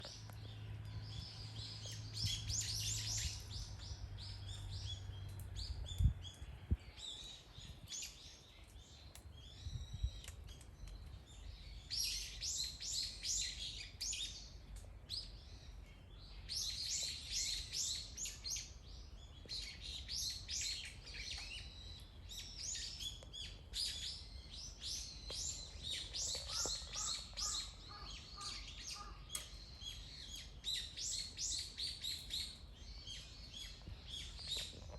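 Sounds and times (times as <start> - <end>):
songbirds chirping and singing: 0.0 - 34.9
low chattering bird call: 19.6 - 32.6.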